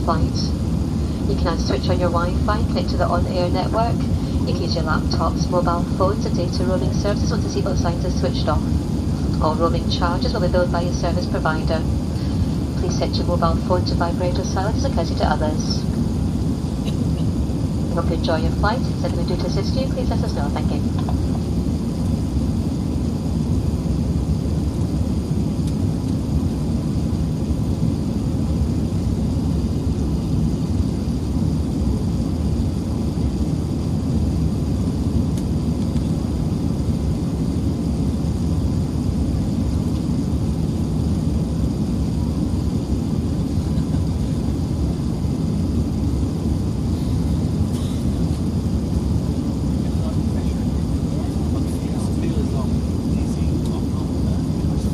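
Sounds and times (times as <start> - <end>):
airplane cabin rumble: 0.0 - 54.9.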